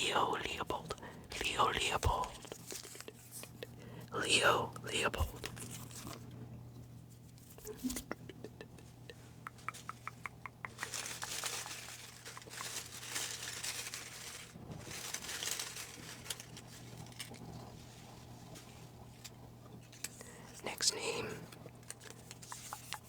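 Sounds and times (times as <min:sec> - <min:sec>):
paper rustling and crinkling: 0:01.8 - 0:03.6, 0:05.0 - 0:06.3, 0:10.7 - 0:20.2, 0:21.4 - 0:23.0.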